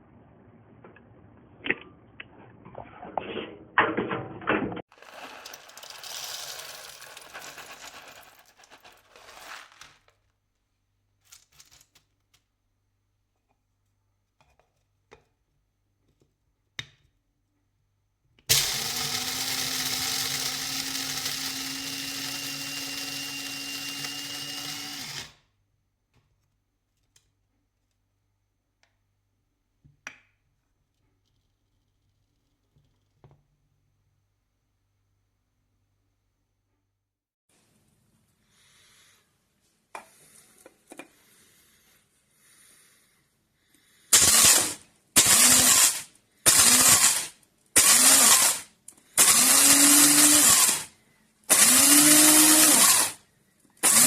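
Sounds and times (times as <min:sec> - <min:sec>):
electric coffee grinder running: 0:04.9 - 0:08.3, 0:18.5 - 0:25.4, 0:47.8 - 0:48.6, 0:49.2 - 0:50.8, 0:51.5 - 0:53.2.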